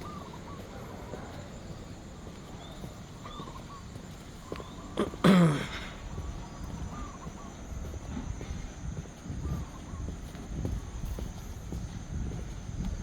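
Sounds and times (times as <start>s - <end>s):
faint bird chirps: 0.0s - 8.1s, 9.3s - 10.4s
footsteps on paved path: 0.0s - 13.0s
man coughing or grunting: 5.0s - 6.0s.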